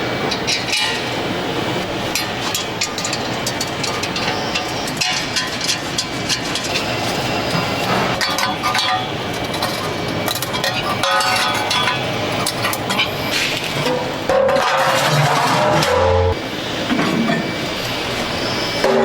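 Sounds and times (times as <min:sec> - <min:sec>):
noisy workshop background: 0:00.0 - 0:19.0
steel parts clinking and knocking: 0:00.3 - 0:01.1, 0:02.2 - 0:16.4.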